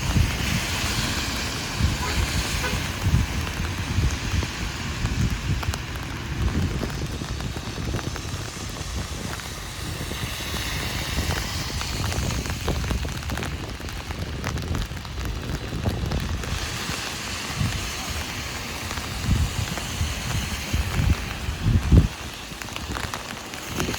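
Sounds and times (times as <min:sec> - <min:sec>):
heavy rain on an umbrella: 0:00.0 - 0:23.9.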